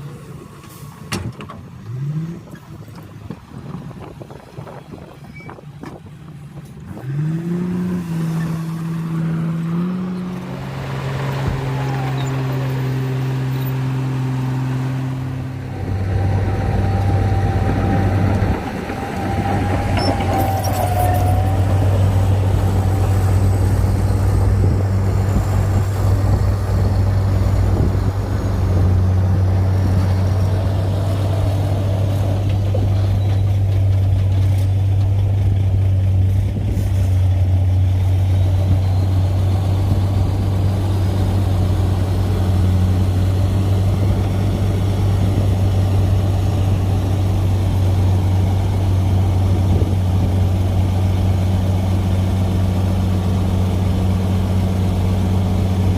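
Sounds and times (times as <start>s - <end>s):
bulldozer diesel engine running: 0.0s - 55.9s
short high squeal: 5.2s - 5.6s, 11.8s - 12.8s, 19.4s - 22.3s.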